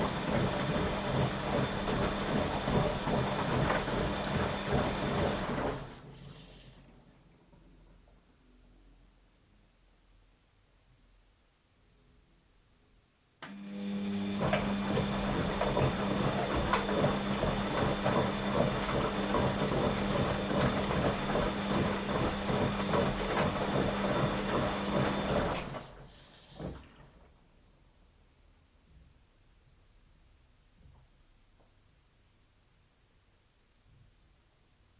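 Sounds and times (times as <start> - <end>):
washing machine rattling: 0.0 - 6.0, 14.4 - 26.0
washing machine motor hum: 0.0 - 7.2, 13.5 - 27.4.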